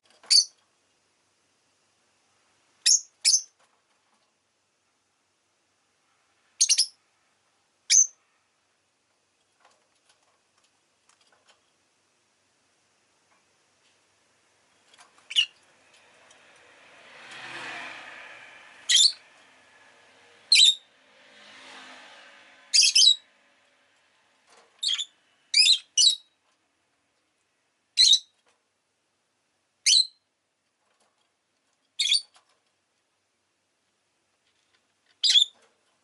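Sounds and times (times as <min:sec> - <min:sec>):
lovebird chirping: 0:00.3 - 0:00.6, 0:02.8 - 0:03.6, 0:06.6 - 0:07.0, 0:07.9 - 0:08.2, 0:15.2 - 0:15.6, 0:18.9 - 0:19.2, 0:20.5 - 0:20.8, 0:22.7 - 0:23.2, 0:24.8 - 0:26.4, 0:28.0 - 0:28.4, 0:29.8 - 0:30.3, 0:32.0 - 0:32.3, 0:35.2 - 0:35.6
street traffic passing: 0:14.6 - 0:26.0.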